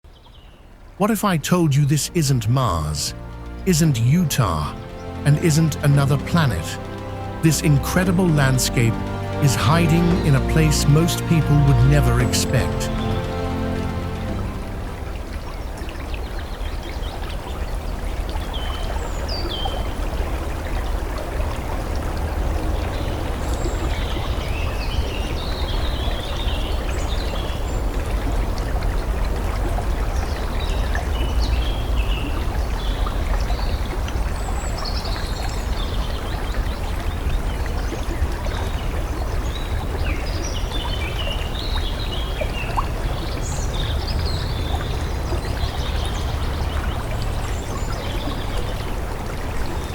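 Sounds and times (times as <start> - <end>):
stream flowing: 0.8 - 49.9.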